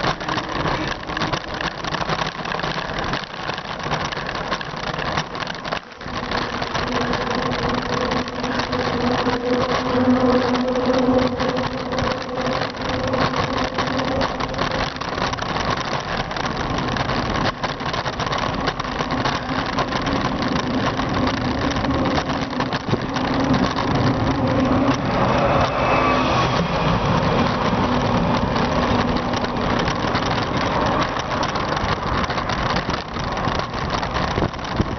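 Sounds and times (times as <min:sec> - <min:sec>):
bicycle road noise: 0:00.0 - 0:34.9
wind rushing over microphone: 0:00.0 - 0:34.9
steady droning hum: 0:05.8 - 0:16.6.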